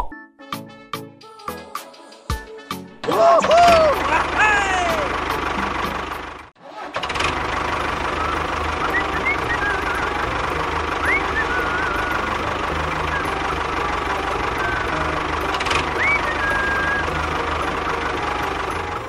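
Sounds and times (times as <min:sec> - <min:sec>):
tractor engine chugging: 0:03.1 - 0:19.0
high chirping whistles: 0:08.2 - 0:10.3, 0:11.0 - 0:13.4, 0:15.9 - 0:17.2.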